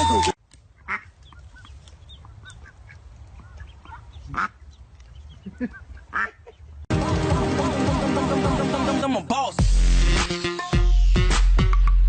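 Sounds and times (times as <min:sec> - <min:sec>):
birds calling: 0:00.1 - 0:06.8.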